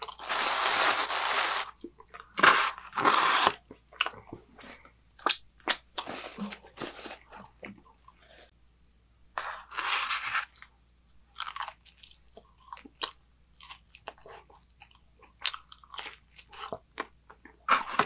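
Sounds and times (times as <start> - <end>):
paper napkin rustling: 0.2 - 1.7
crunchy chewing: 11.3 - 18.0.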